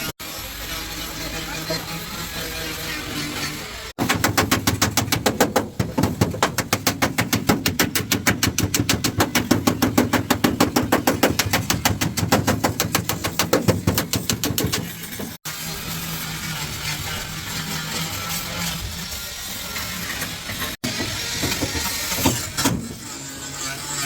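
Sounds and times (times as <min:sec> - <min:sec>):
rapid knocks: 0:04.0 - 0:15.4.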